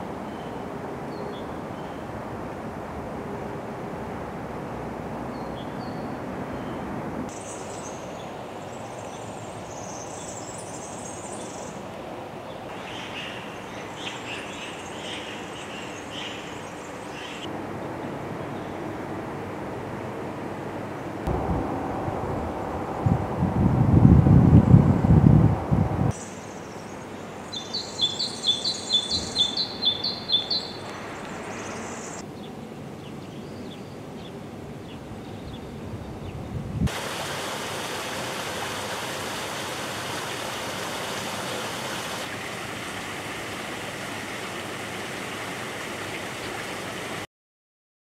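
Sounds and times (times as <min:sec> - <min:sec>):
songbird chirping: 0:05.4 - 0:17.5, 0:26.1 - 0:36.6
steady rushing noise: 0:21.2 - 0:26.2.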